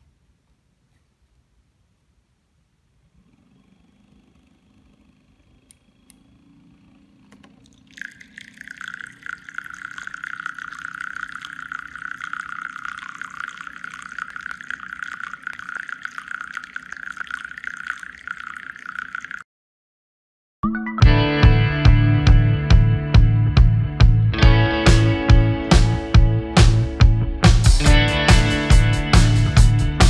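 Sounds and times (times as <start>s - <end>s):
water splashing and trickling: 7.5s - 19.4s.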